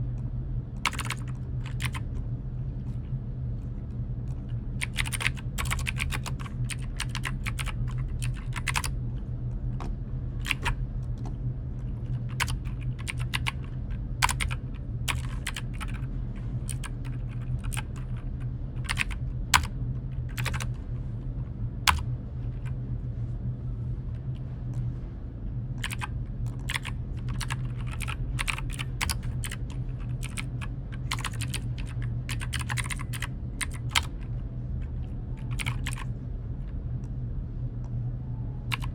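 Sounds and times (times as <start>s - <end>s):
low hum: 0.0s - 38.9s
keyboard typing: 0.8s - 2.1s, 4.3s - 9.0s, 10.4s - 11.4s, 12.0s - 18.2s, 18.8s - 19.7s, 20.3s - 20.8s, 25.8s - 34.2s, 35.4s - 36.1s.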